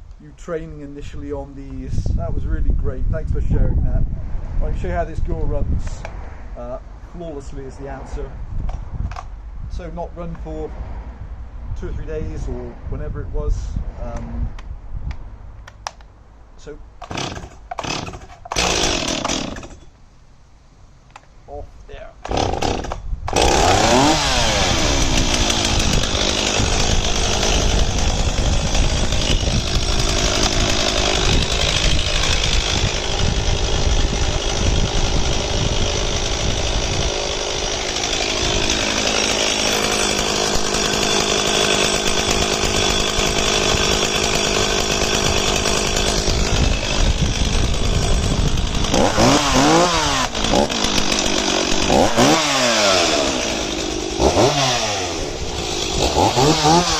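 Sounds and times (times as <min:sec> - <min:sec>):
chainsaw revving: 0:17.0 - 0:19.8, 0:22.2 - 0:56.9.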